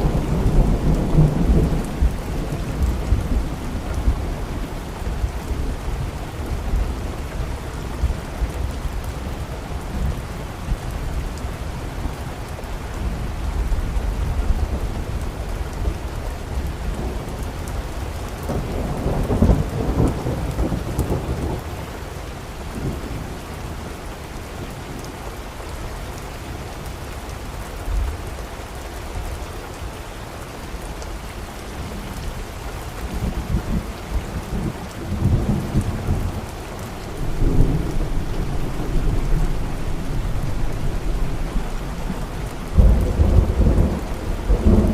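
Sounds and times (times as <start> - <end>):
steady rain: 0.0 - 44.9
rolling thunder: 33.3 - 44.9.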